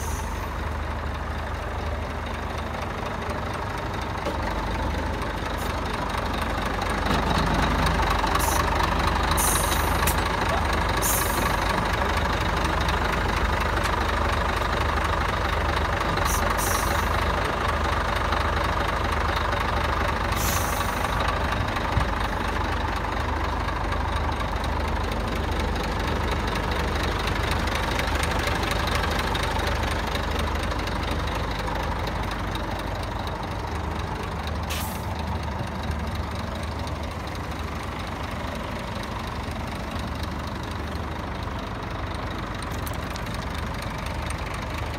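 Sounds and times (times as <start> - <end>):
diesel truck engine idling: 0.0 - 44.9
short air hisses: 9.4 - 10.0, 34.7 - 35.1.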